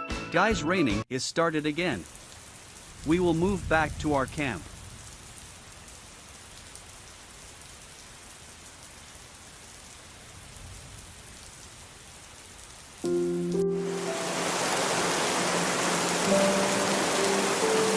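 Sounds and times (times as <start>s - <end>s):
steady rain falling: 1.4s - 17.9s
held music notes: 13.0s - 17.9s.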